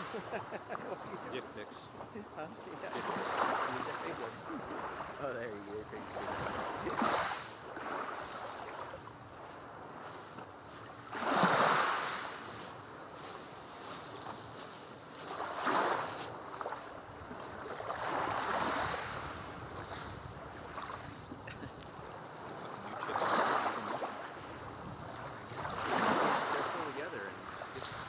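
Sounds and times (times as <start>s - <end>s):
steady hiss of surf: 0.0s - 28.0s
waves breaking on beach: 0.0s - 28.0s.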